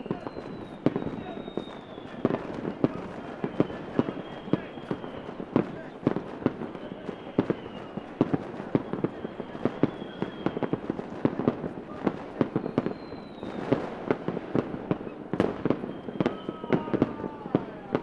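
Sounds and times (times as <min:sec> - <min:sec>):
faint high whistle rising: 0:00.0 - 0:05.6, 0:06.8 - 0:10.8, 0:12.4 - 0:13.8, 0:15.0 - 0:18.0
fireworks bangs and pops: 0:00.0 - 0:18.0
fireworks crackle: 0:00.0 - 0:18.0.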